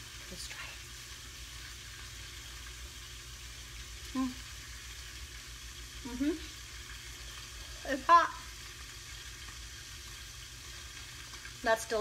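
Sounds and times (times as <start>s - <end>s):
green beans sizzling in pan: 0.0s - 12.0s
person humming: 4.1s - 4.4s, 6.0s - 6.5s.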